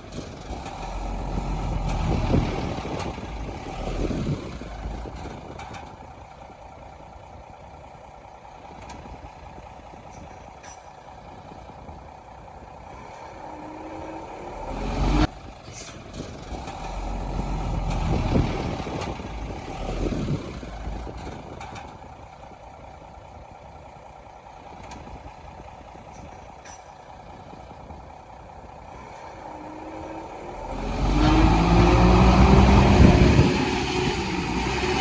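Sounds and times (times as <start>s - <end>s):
heavy diesel engine running: 0.0s - 35.0s
deep rumble: 30.9s - 35.0s.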